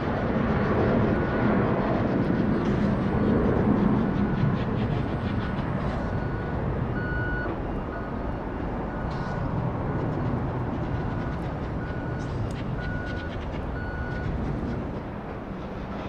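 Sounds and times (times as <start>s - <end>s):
jet rumble: 0.0s - 16.0s
road traffic: 0.0s - 16.0s
reversing alarm beeps: 4.3s - 10.0s, 11.0s - 14.3s.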